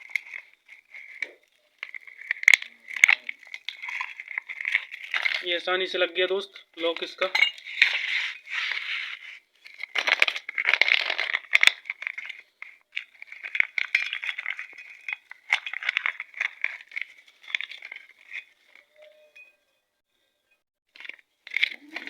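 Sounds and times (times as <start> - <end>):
plastic sheet crinkling: 0.0 - 6.0, 7.7 - 18.4
metal parts and tools clinking: 0.0 - 19.8, 20.9 - 22.0.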